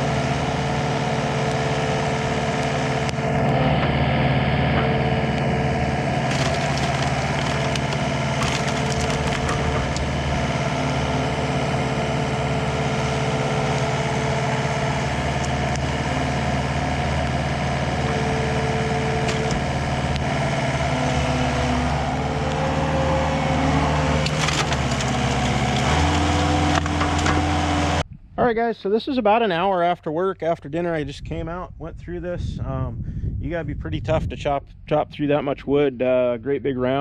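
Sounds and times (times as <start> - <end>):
hydraulic splitter crunching wood: 0.0 - 28.0
diesel engine running: 0.0 - 28.1
wood cracking and splintering: 5.4 - 11.3, 12.6 - 22.8, 23.4 - 28.0.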